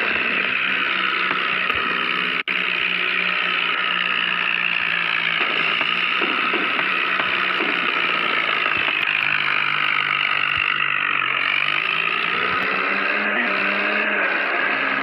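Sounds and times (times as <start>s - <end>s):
small motor running: 0.0s - 15.0s.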